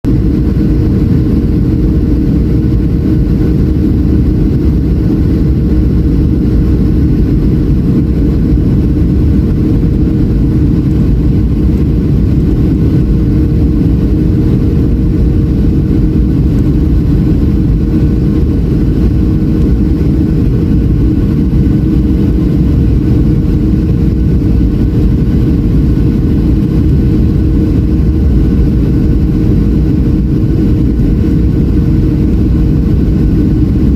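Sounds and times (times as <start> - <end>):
jet engine rumble: 0.0 - 33.9.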